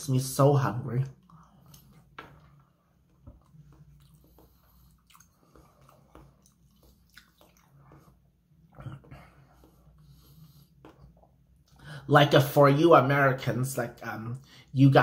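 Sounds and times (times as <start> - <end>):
wet mouth clicks and smacks: 3.4 - 8.0.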